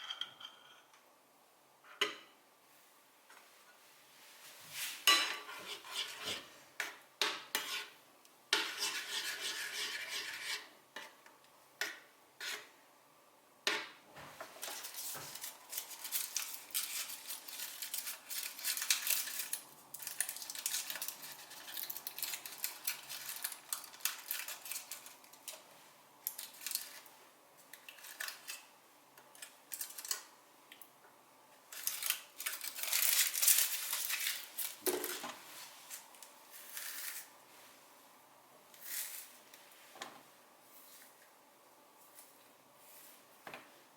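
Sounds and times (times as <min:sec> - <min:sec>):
scraping and stirring: 0:04.7 - 0:11.2, 0:11.8 - 0:12.8, 0:14.4 - 0:30.3, 0:31.7 - 0:37.7.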